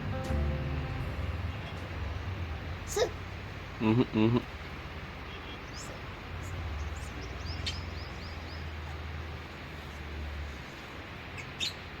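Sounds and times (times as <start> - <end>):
low hum: 0.0 - 3.8
lovebirds chirping: 5.2 - 10.2, 11.2 - 12.0.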